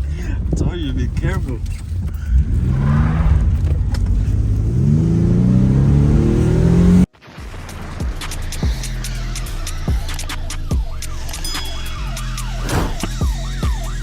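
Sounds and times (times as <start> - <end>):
low engine rumble: 0.0 - 7.1
car engine accelerating: 1.1 - 7.1.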